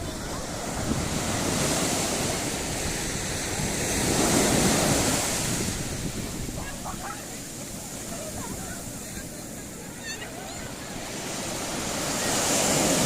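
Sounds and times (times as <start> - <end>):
wind buffeting microphone: 0.0 - 10.0
waves breaking and washing in: 0.0 - 13.0.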